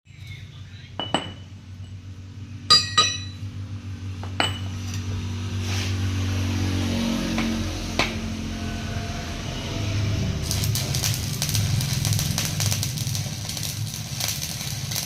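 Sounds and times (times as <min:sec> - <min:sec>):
metal clinks: 0:02.7 - 0:03.4, 0:04.4 - 0:04.7.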